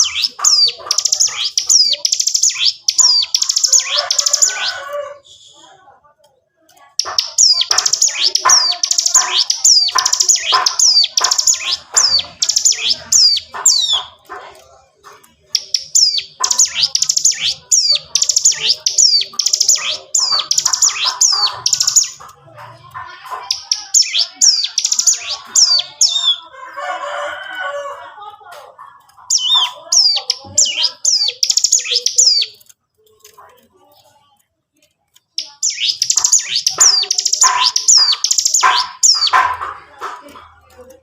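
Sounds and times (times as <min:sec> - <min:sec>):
small bird singing fast bursts: 0:35.4 - 0:39.3.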